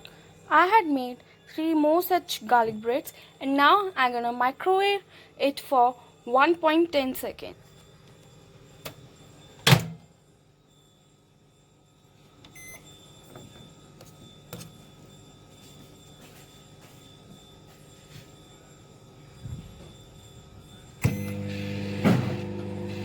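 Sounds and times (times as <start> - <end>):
keypad beep: 12.5 - 12.8
microwave door shutting: 21.0 - 23.0
microwave humming: 21.0 - 23.0.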